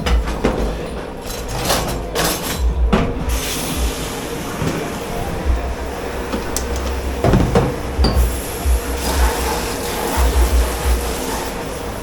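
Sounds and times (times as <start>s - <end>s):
dishes clattering: 0.0s - 3.4s, 6.3s - 8.5s
machine hum: 2.2s - 12.0s
steady hiss: 3.2s - 12.0s.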